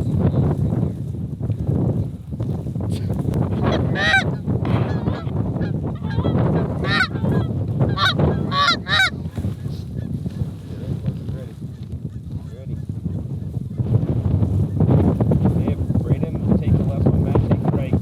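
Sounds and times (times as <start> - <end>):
geese honking: 3.6 - 9.2.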